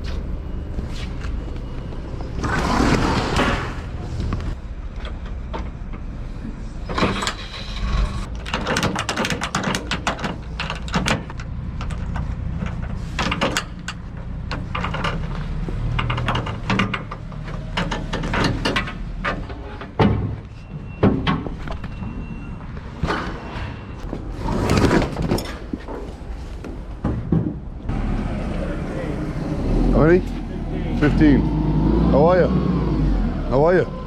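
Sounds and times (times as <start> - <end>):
diesel engine rumbling: 0.0 - 34.0
knocks clatters and rattles: 6.9 - 22.2, 22.8 - 27.9.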